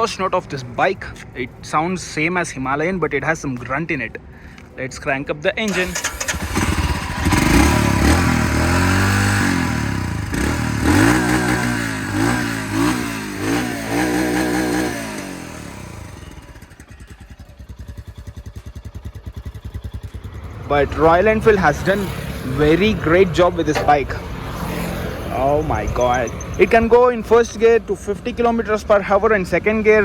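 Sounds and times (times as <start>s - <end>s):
motorcycle engine revving: 5.7s - 27.0s.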